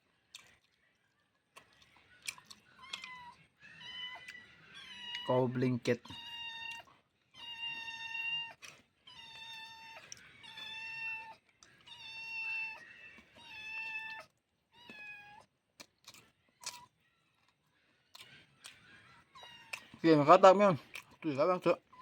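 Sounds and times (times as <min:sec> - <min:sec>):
cat meowing: 0:02.8 - 0:05.3, 0:06.1 - 0:15.5.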